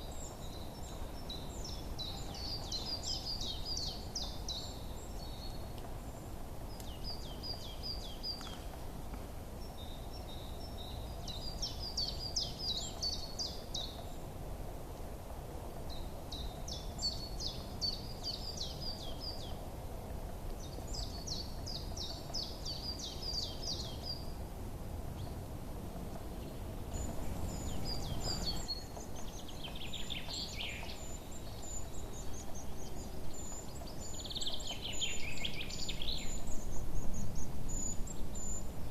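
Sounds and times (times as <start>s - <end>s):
songbirds chirping trilled phrases: 26.3s - 38.9s
birds with higher quicker calls: 26.9s - 36.8s.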